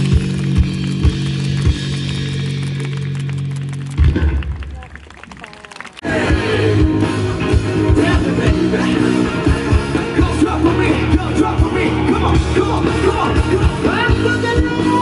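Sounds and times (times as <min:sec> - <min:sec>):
live rock band playing: 0:05.7 - 0:15.0.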